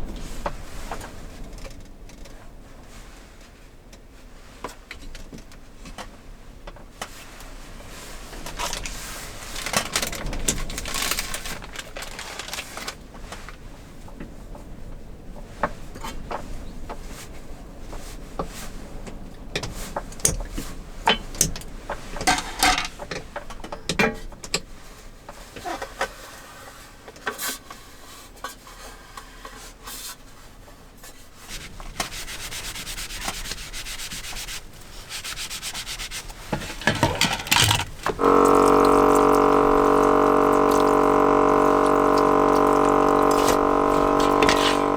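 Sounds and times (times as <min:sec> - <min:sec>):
rubbing and scraping handling noise: 0:08.6 - 0:13.0, 0:31.0 - 0:44.9.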